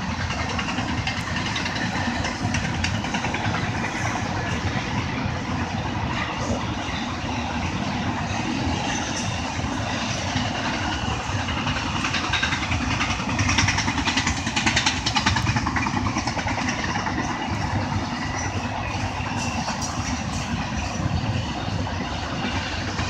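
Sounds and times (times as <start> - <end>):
train wheels rumbling on rails: 0.0 - 23.0
rapid rattling clicks: 10.0 - 18.4.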